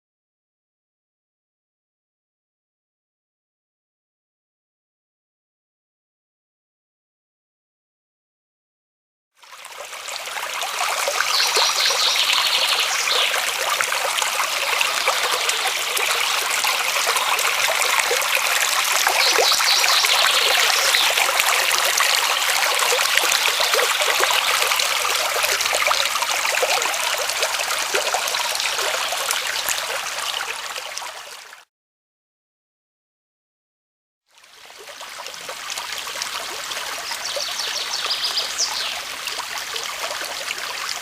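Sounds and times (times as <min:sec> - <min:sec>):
brook trickling and babbling: 0:09.4 - 0:31.7, 0:34.3 - 0:41.0.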